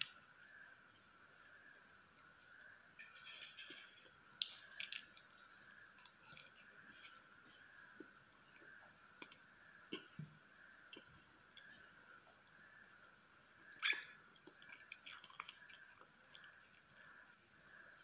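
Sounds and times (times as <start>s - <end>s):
faint steady background tone: 0.0s - 18.0s
wet chewing and lip smacks: 4.4s - 10.2s, 13.8s - 17.6s.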